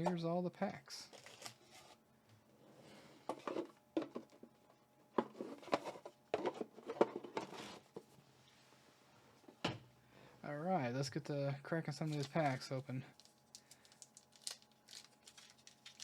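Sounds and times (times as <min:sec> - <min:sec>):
foil packs crinkling: 0:12.0 - 0:16.0.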